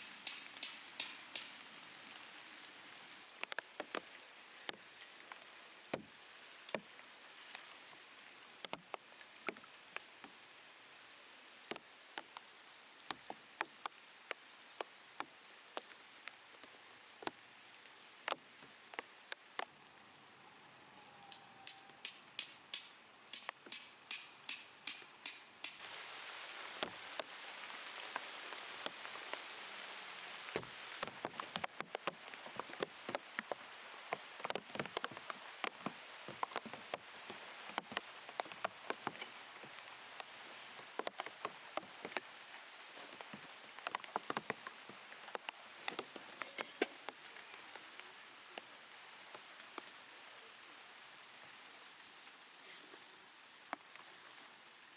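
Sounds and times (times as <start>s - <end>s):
rapid sharp knocks: 0.0s - 1.6s
raindrops tapping on plastic: 0.0s - 1.8s, 3.3s - 7.0s, 8.6s - 10.4s, 11.6s - 17.4s, 18.1s - 19.7s, 26.8s - 50.5s
rain falling: 0.0s - 51.7s.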